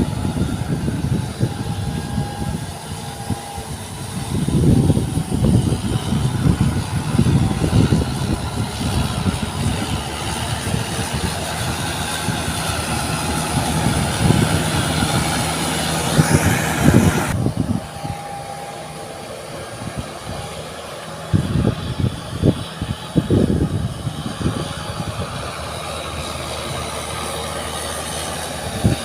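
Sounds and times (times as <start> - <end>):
tractor engine under load: 0.0 - 29.0.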